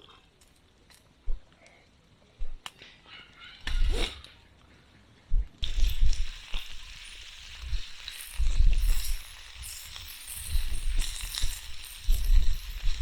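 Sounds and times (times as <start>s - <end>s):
food sizzling on a grill: 5.6s - 13.0s.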